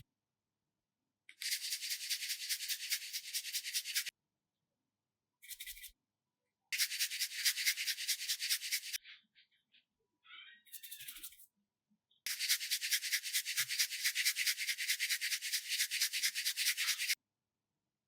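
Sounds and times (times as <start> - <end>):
rapid scratchy rubbing: 1.4 - 4.1, 6.8 - 9.0, 12.3 - 17.2.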